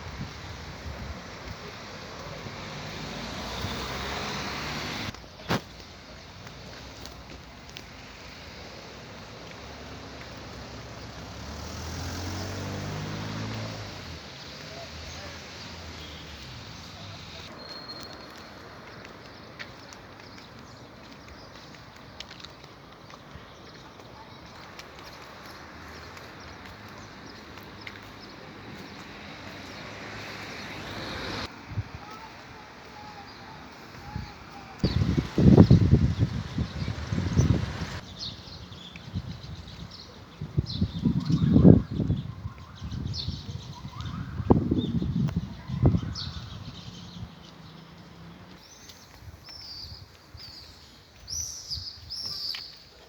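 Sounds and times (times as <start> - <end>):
steady outdoor hiss: 0.0 - 40.6
small birds chirping: 0.4 - 53.0.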